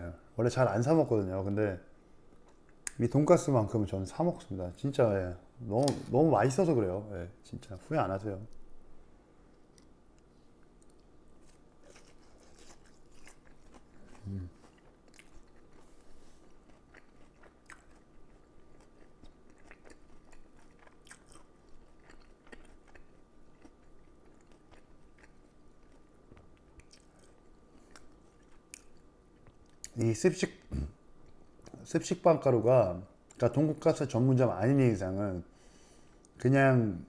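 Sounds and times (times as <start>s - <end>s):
chewing crispy food: 9.6s - 30.0s
low voiced hum: 13.8s - 14.8s, 29.9s - 31.0s.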